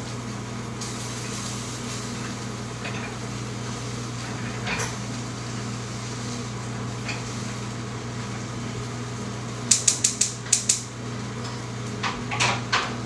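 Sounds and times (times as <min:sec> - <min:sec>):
sharp clicks: 0:09.7 - 0:10.9.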